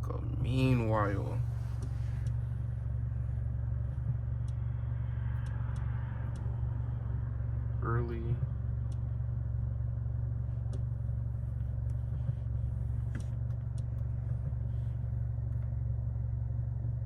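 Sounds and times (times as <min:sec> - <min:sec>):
car engine idling: 0:00.0 - 0:17.0
faint clicks: 0:04.0 - 0:07.6, 0:08.4 - 0:09.2, 0:10.6 - 0:15.8.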